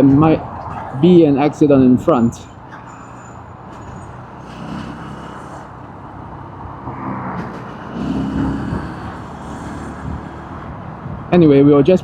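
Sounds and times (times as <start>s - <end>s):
road noise: 0.0s - 12.0s
motorcycle engine running: 3.4s - 11.7s.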